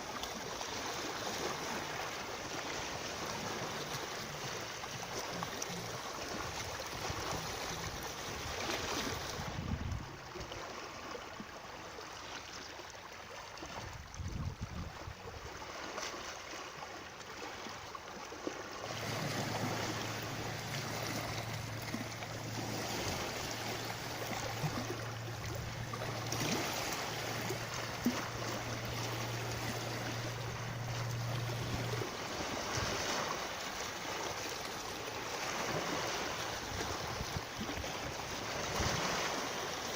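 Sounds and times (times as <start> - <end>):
running water rushing: 0.0 - 39.9
low steady hum: 18.7 - 35.2.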